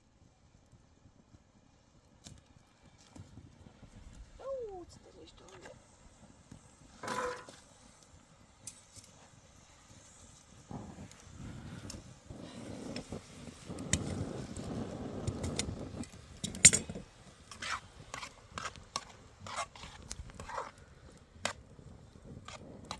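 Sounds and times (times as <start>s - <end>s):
scraping rustling of handling: 7.0s - 7.7s.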